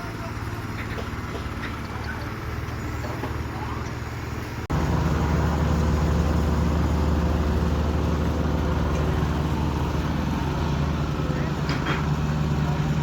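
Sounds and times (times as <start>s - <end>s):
construction machine engine droning: 0.0s - 13.0s.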